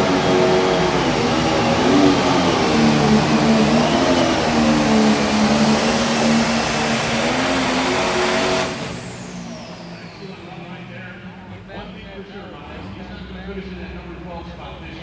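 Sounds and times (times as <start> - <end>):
high whine: 0.0 - 10.5
tractor engine at full throttle: 0.0 - 11.4.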